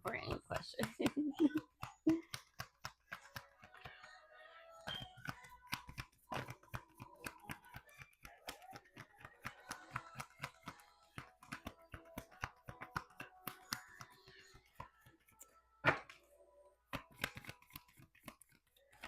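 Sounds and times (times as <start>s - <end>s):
cards being shuffled: 5.0s - 15.2s, 17.0s - 19.0s.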